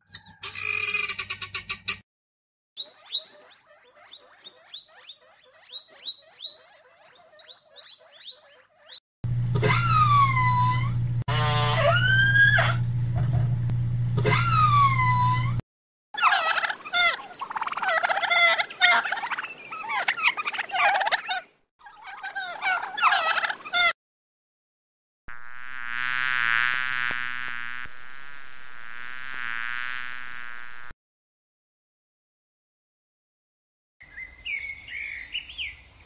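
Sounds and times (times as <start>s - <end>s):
turkeys gobbling: 16.2s - 23.9s.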